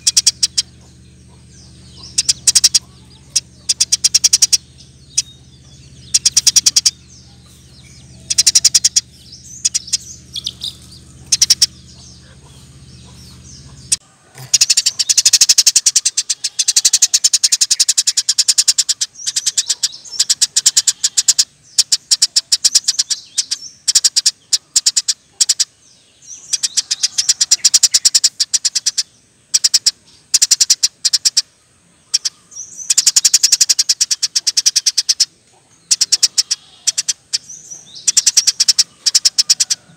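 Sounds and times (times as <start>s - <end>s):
low hum: 0.0s - 20.1s
sparrow chirping: 0.0s - 39.9s.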